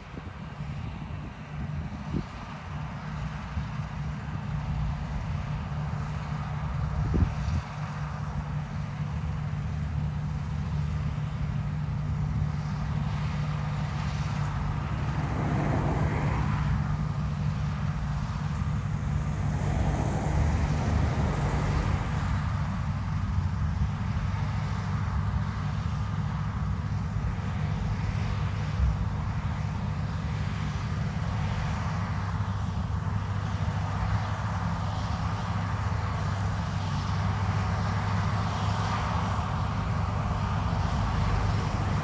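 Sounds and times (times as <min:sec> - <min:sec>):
loud rushing swell: 0:14.9 - 0:16.9.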